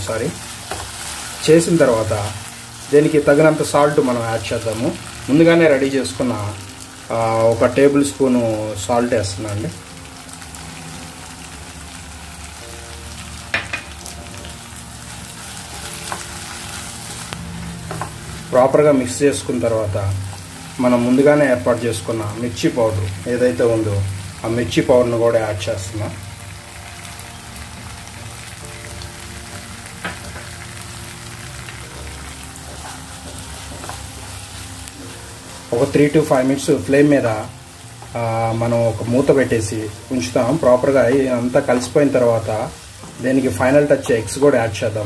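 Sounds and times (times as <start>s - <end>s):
masala sizzling in a pan: 0.0s - 45.0s
wooden spatula stirring: 32.0s - 34.6s.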